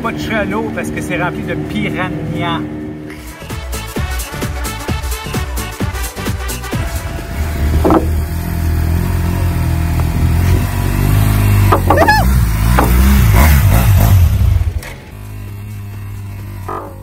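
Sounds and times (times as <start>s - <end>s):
motor engine running and revving: 6.5s - 17.0s.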